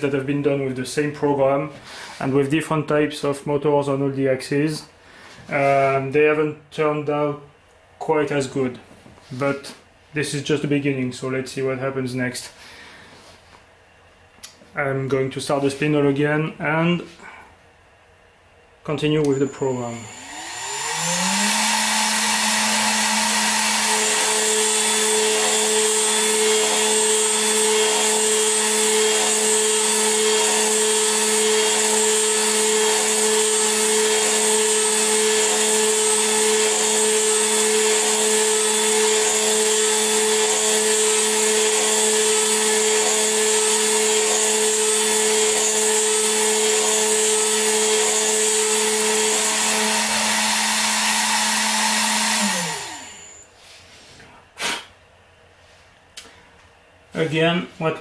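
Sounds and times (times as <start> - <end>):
milling spindle high whine: 19.2 - 53.4
cutter cutting high tone: 19.2 - 53.5.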